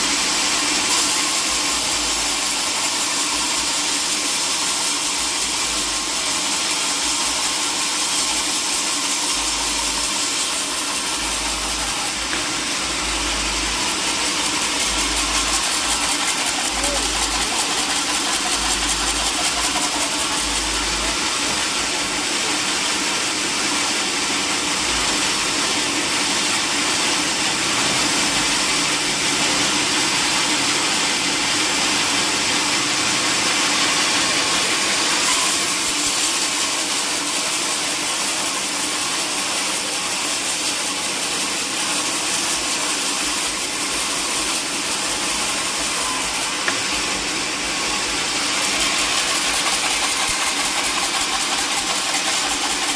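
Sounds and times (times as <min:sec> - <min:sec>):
loud hiss: 0:00.0 - 0:23.8, 0:34.2 - 0:52.9
sawmill machinery drone: 0:00.0 - 0:52.9.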